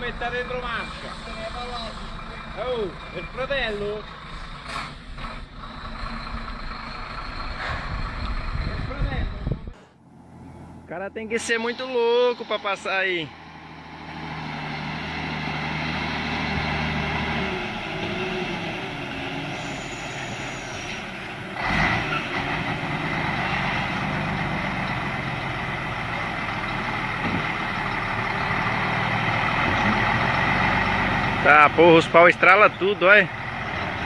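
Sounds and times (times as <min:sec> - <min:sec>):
truck engine running: 0:00.0 - 0:09.1, 0:09.9 - 0:34.0.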